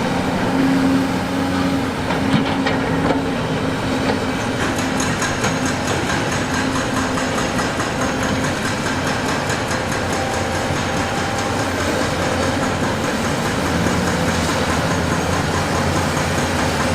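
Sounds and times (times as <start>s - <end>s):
heavy machinery diesel engine: 0.0s - 16.9s.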